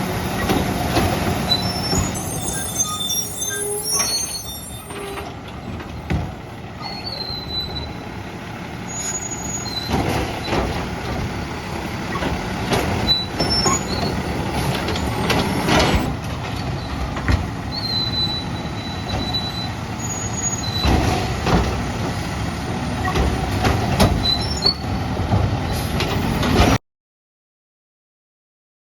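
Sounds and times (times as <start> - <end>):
garbage truck engine: 0.0 - 26.8
short high squeals: 1.5 - 5.3, 6.8 - 8.0, 8.9 - 9.9, 13.1 - 14.1, 17.7 - 20.9
clanks and knocks: 5.1 - 6.4, 23.1 - 24.4.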